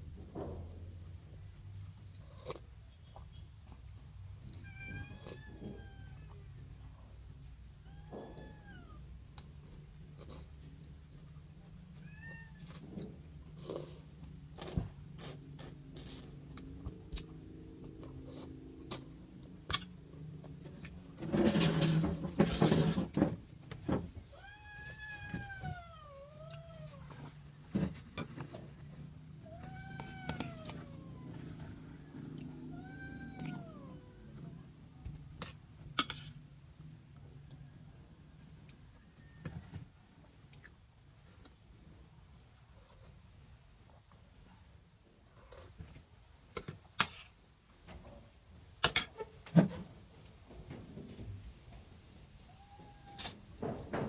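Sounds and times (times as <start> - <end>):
cat meowing: 4.6 - 6.5, 7.8 - 9.0, 12.0 - 12.8, 24.3 - 27.2, 29.4 - 34.6, 52.5 - 53.4.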